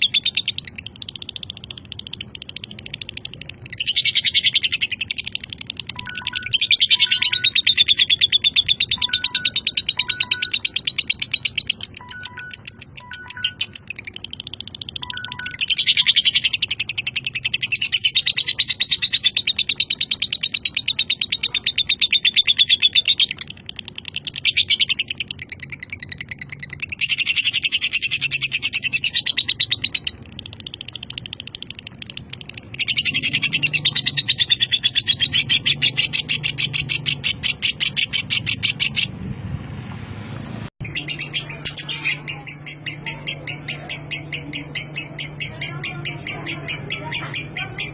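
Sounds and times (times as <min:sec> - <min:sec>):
lovebird chattering trill: 0:00.0 - 0:39.1, 0:40.8 - 0:47.9.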